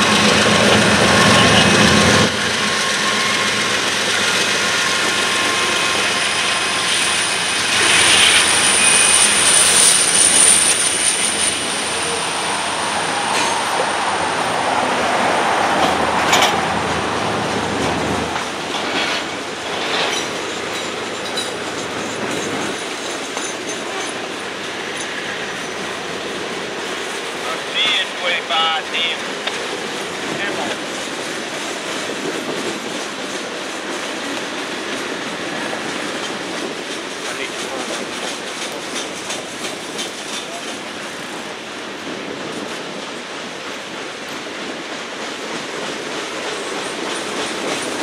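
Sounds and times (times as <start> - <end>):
diesel locomotives rumbling: 0.0 - 48.0
wheels clacking over rail joints: 0.0 - 48.0
high wheel squeal: 1.0 - 13.8
freight cars clattering over rails: 14.9 - 28.2, 28.8 - 41.4.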